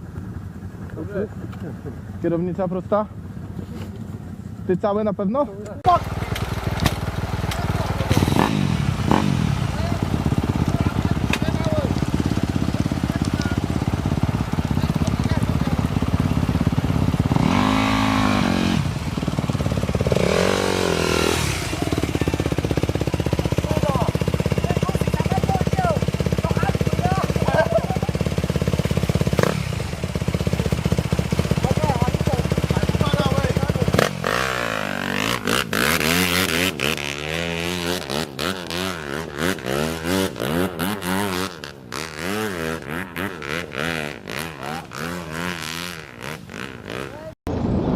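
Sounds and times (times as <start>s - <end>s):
motorcycle engine idling and revving: 0.0s - 47.8s.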